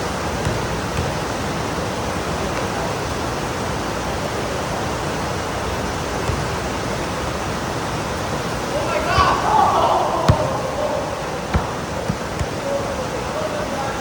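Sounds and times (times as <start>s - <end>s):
heavy rain pouring: 1.4s - 14.0s.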